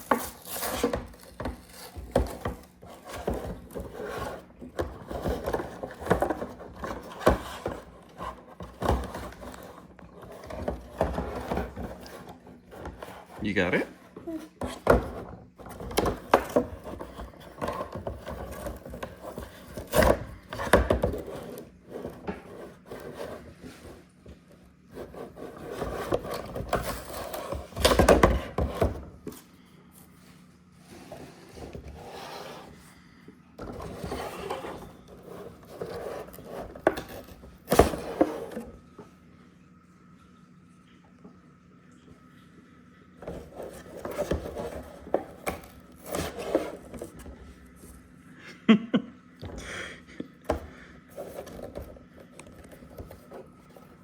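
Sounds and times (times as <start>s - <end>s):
packaging rubbing and scraping: 0.0s - 24.1s.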